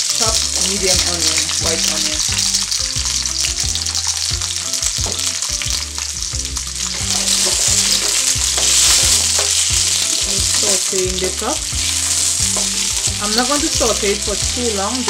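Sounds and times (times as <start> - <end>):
vegetables sizzling in oil: 0.0 - 15.0
spatula stirring in wok: 6.8 - 14.6.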